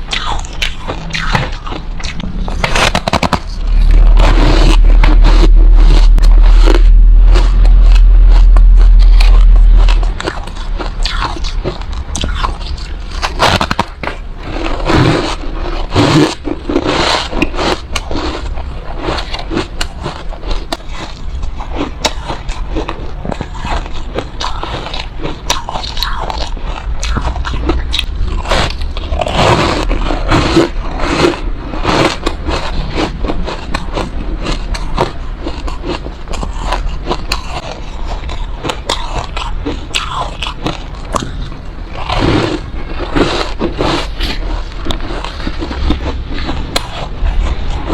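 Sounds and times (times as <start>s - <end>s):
loud low rumble: 0.0s - 16.8s, 26.3s - 35.4s, 36.5s - 47.9s
chewing crunchy ice: 0.0s - 47.9s.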